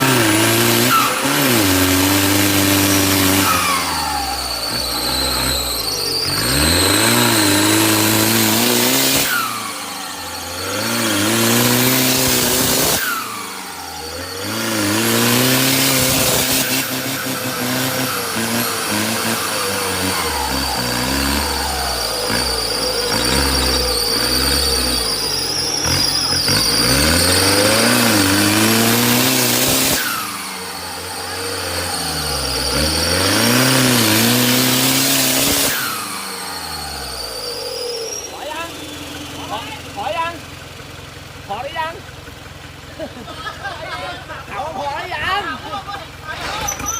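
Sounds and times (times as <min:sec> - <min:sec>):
truck engine revving: 0:00.0 - 0:46.9
high steady whine: 0:03.0 - 0:34.1.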